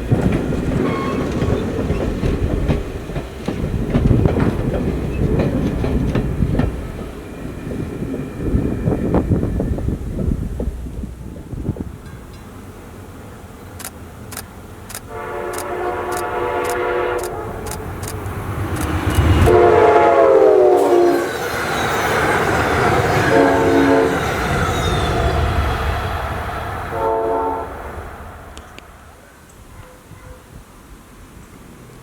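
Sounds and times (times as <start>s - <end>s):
passing train rumble and clatter: 0.0s - 32.0s
steam locomotive exhaust chuffs: 13.8s - 21.5s
steam whistle blasts: 15.1s - 17.5s, 19.2s - 21.4s, 23.2s - 24.3s, 26.9s - 27.8s.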